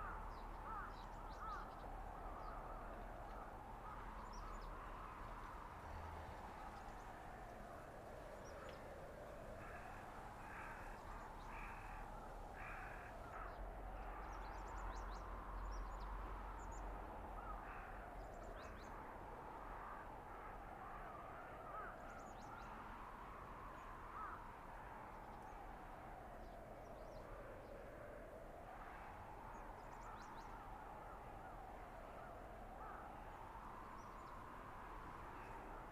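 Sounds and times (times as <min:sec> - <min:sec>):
crow cawing: 0:00.0 - 0:01.8, 0:09.6 - 0:14.4, 0:17.4 - 0:18.0, 0:20.3 - 0:22.0, 0:24.1 - 0:24.4, 0:32.8 - 0:33.2
wind howling through forest: 0:00.0 - 0:35.9.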